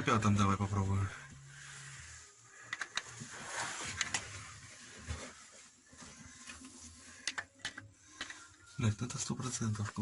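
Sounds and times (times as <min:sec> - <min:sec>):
rustling: 0:03.1 - 0:07.2.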